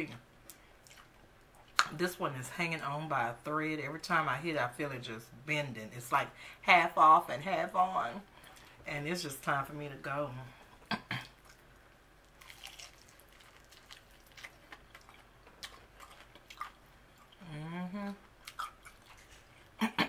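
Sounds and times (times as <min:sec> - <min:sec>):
chewing and crunching: 0:00.4 - 0:01.9, 0:11.2 - 0:19.8.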